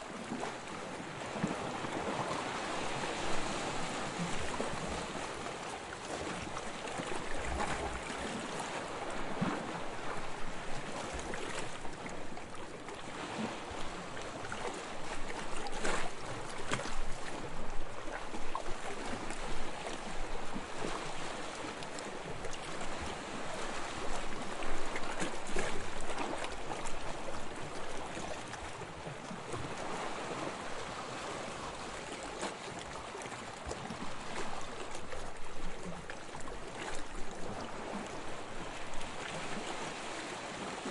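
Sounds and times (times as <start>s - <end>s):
waves lapping on sandy shore: 0.0s - 40.9s.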